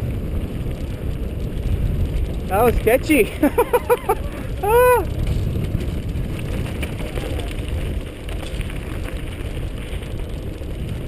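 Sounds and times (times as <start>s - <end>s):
bike tyres rolling on dirt: 0.0s - 11.0s
small clicks and rattles: 0.0s - 11.0s
wind buffeting microphone: 0.0s - 11.0s.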